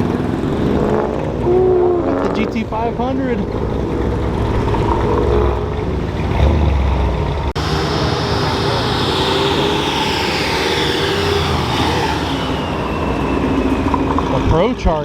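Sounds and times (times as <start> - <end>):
car engines rumbling: 0.0 - 15.0
high whine falling in pitch: 7.6 - 14.2.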